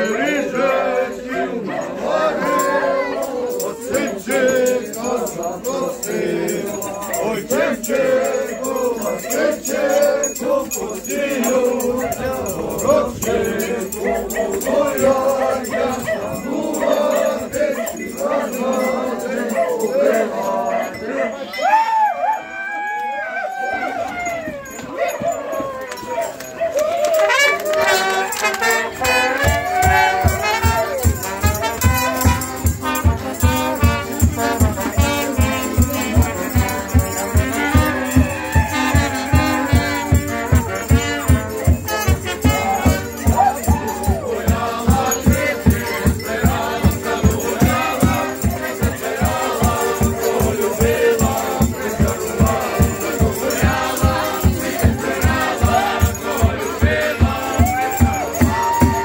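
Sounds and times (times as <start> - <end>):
people singing: 0.0 - 21.8, 27.3 - 59.0
rattling percussion: 2.4 - 20.9, 23.6 - 59.0
drum beating steadily: 28.9 - 59.0.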